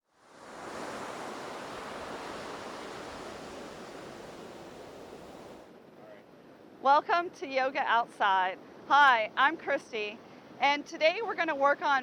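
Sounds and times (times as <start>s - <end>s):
ocean surf breaking on beach: 0.0s - 5.7s.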